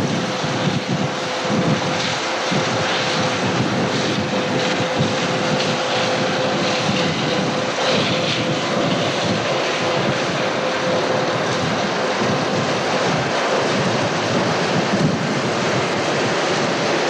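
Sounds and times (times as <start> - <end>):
combine harvester running: 0.0 - 17.0
steady mechanical whine: 0.0 - 17.0.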